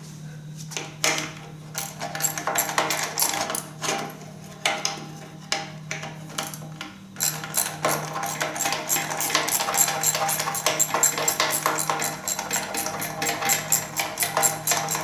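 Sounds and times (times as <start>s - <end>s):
ratchet wrench clicking rapidly: 7.2s - 15.0s
steady low hum: 7.2s - 15.0s.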